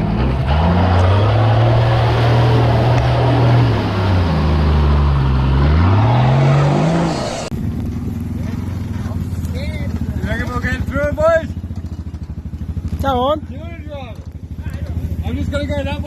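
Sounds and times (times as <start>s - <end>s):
rushing noise: 0.0s - 7.5s
vehicle engine revving under load: 0.0s - 9.5s.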